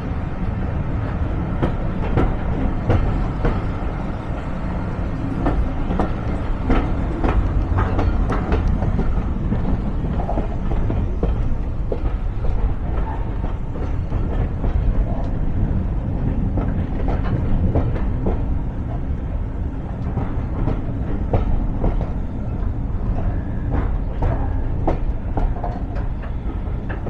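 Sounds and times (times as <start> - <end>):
railway carriage rumbling: 0.0 - 27.0
wheels clicking and knocking: 0.8 - 19.1.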